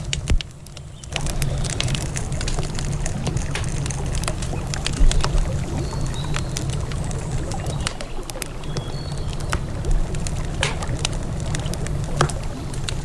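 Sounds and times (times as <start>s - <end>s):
wood fire crackling: 0.5s - 13.0s
high whistling peeps: 1.2s - 13.0s
river rushing: 1.2s - 13.0s.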